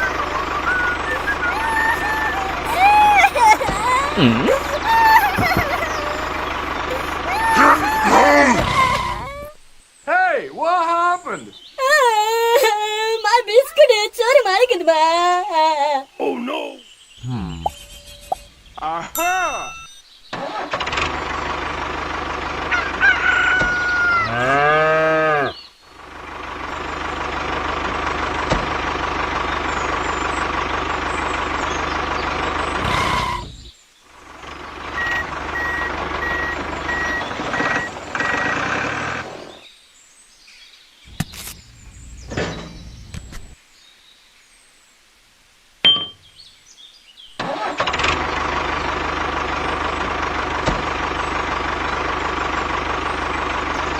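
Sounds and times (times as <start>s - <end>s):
small engine running: 0.0s - 9.5s, 20.4s - 24.8s, 26.0s - 33.6s, 34.2s - 39.6s, 47.4s - 53.9s
rooster crowing: 22.7s - 25.6s.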